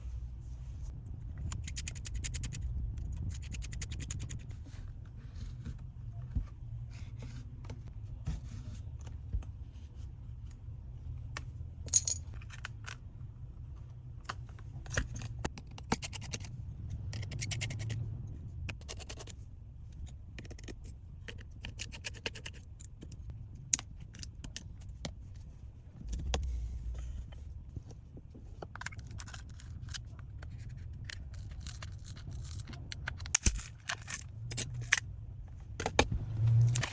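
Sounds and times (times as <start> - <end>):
low steady hum: 0.0 - 36.9
metal tools clicking and scraping: 1.4 - 4.5, 11.9 - 13.0, 17.1 - 18.0, 28.7 - 35.1.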